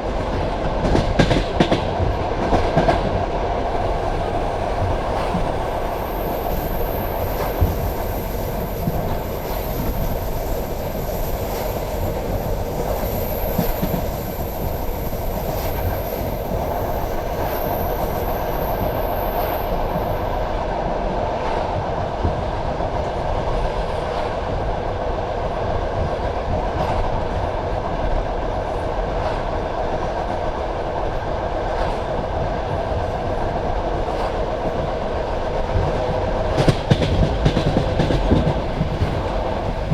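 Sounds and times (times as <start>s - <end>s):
train wheels rumbling on rails: 0.0s - 39.9s
thin high whine: 3.6s - 20.5s.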